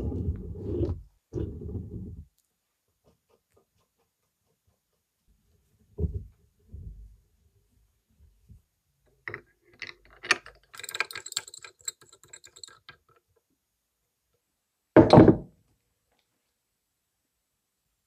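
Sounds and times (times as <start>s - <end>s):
metal parts clicking: 9.3s - 13.1s.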